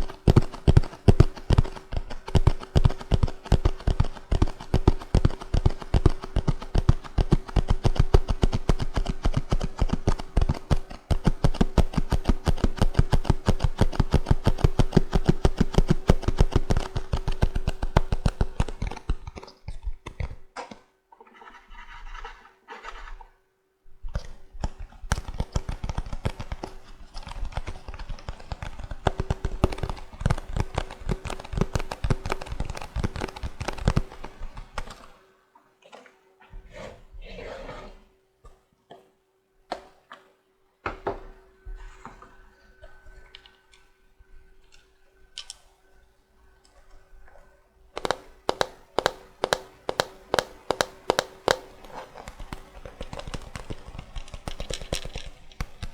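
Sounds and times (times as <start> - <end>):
tapping on a cardboard box: 48.0 - 55.8.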